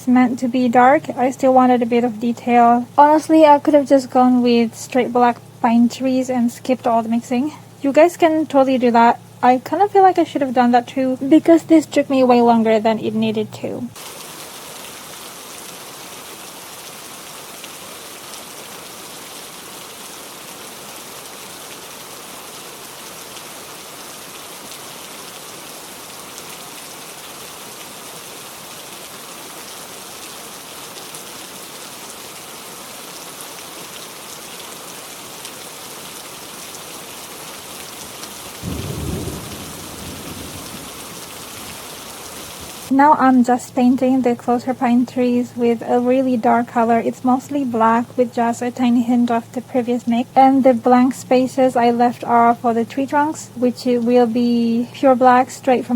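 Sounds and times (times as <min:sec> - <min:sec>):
steady rain: 0:00.0 - 0:55.9
thunder rumbling: 0:38.6 - 0:43.4.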